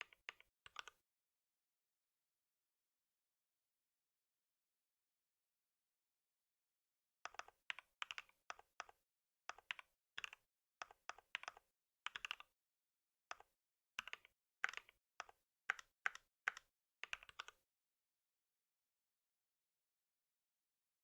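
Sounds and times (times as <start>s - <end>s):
computer keyboard typing: 0.0s - 1.0s, 7.3s - 12.5s, 13.3s - 17.6s.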